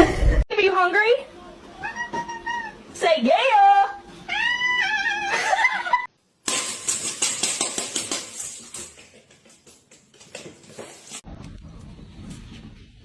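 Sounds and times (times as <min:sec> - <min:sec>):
cat meowing: 0:04.3 - 0:05.4
rapid clattering clicks and rustling: 0:06.5 - 0:11.2.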